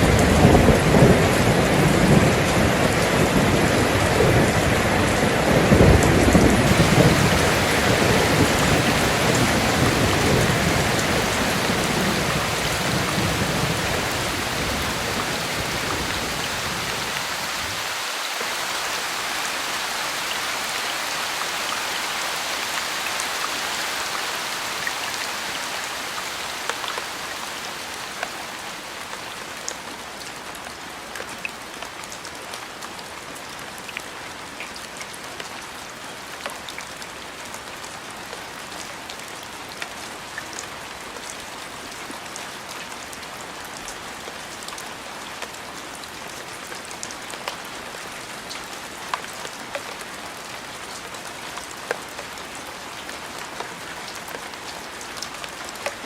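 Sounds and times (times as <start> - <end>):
steady rain: 0.0 - 56.0
rolling rumble of thunder: 0.1 - 17.8.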